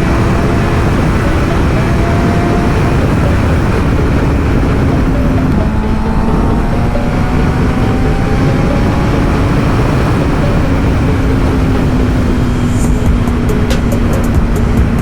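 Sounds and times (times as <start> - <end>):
motorcycle engine running: 0.0 - 15.0
wind rushing over microphone: 0.0 - 15.0.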